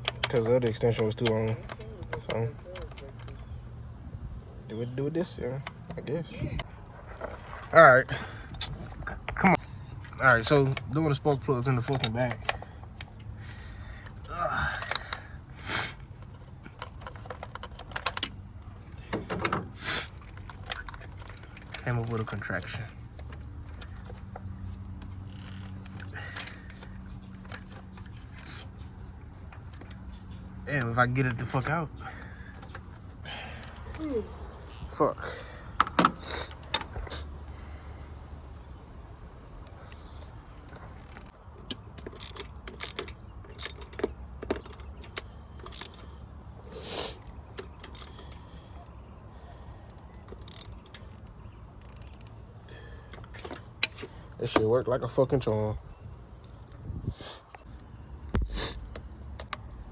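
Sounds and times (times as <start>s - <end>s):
socket wrench clicking: 0.0s - 3.5s, 41.2s - 46.2s, 47.2s - 48.5s, 49.9s - 52.4s, 57.7s - 59.9s
hand tools clicking and knocking: 0.0s - 3.6s, 8.4s - 13.3s, 14.0s - 15.3s, 16.1s - 28.8s, 41.1s - 46.2s, 47.2s - 48.5s, 50.0s - 55.5s.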